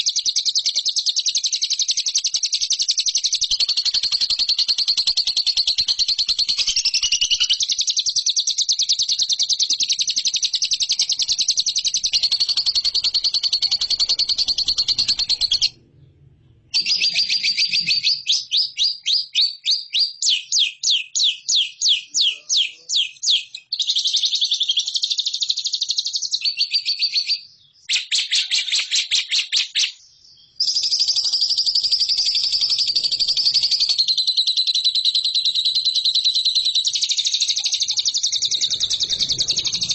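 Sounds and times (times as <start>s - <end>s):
lovebird chattering trill: 0.0s - 15.8s, 30.6s - 39.9s.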